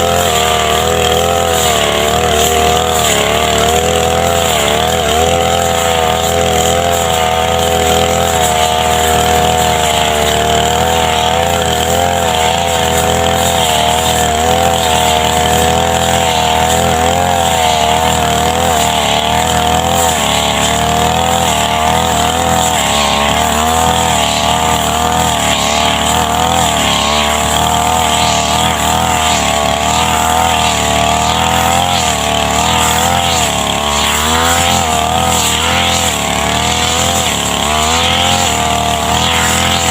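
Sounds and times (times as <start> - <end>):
brush cutter engine cutting grass: 0.0 - 39.9.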